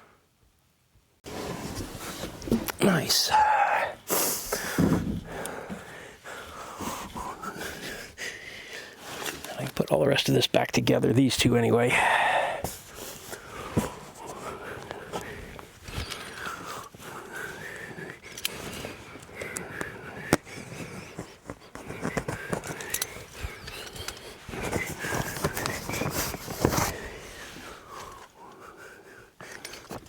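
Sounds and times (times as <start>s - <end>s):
man breathing heavily: 2.1s - 9.5s, 11.9s - 30.0s
tools clicking and knocking: 22.1s - 24.3s.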